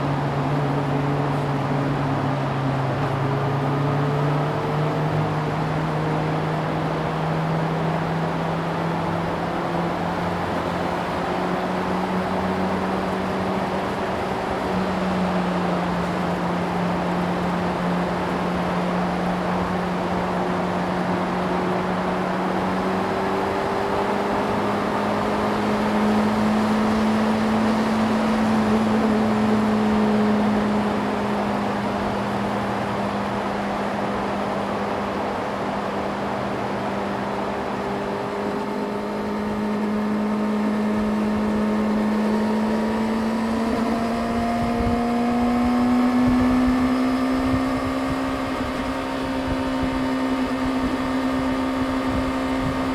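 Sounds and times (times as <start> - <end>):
motorcycle engine cruising: 0.0 - 52.9
wind and road noise: 0.0 - 52.9.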